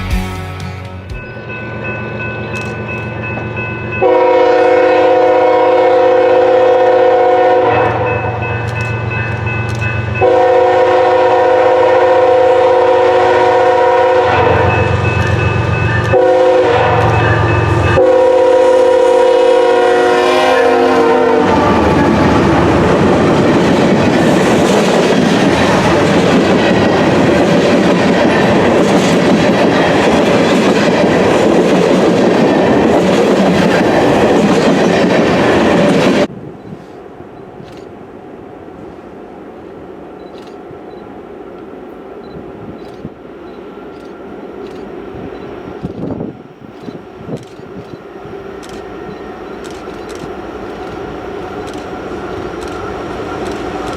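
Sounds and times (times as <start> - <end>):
locomotive horn blasts: 4.0 - 8.6, 10.2 - 22.7
train wheels clattering on rails: 8.0 - 10.4, 14.4 - 18.0, 21.5 - 36.8, 42.7 - 53.9.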